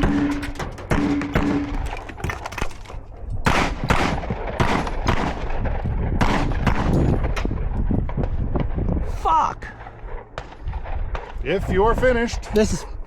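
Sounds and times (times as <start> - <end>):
rapid gunshots: 0.0 - 2.3, 3.4 - 6.9.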